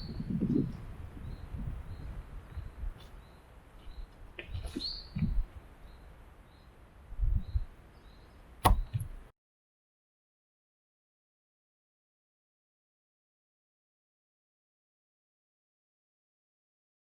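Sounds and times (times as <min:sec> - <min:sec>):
faint bird chirps: 0:00.0 - 0:08.9
thumps on microphone: 0:04.4 - 0:05.5, 0:08.6 - 0:09.2
sharp click: 0:08.6 - 0:09.2.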